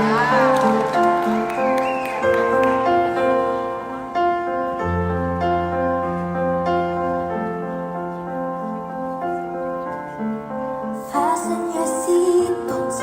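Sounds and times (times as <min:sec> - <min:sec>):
gentle repeating piano figure: 0:00.0 - 0:13.0.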